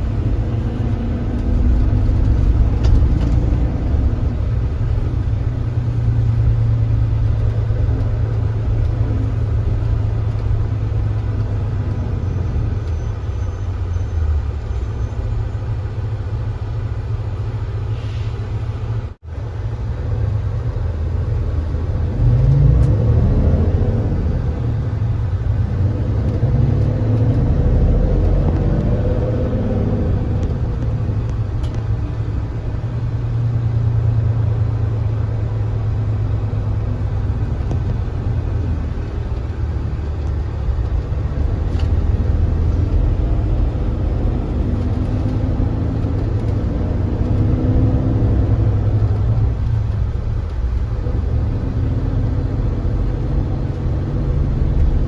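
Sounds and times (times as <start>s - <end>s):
bus diesel engine accelerating: 0.0s - 55.0s.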